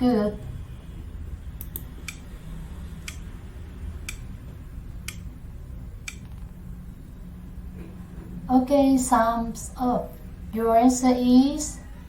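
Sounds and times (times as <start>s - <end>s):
low steady hum: 0.0s - 12.0s
clock ticking: 1.6s - 2.3s, 3.0s - 3.3s, 4.0s - 5.3s, 6.0s - 6.2s.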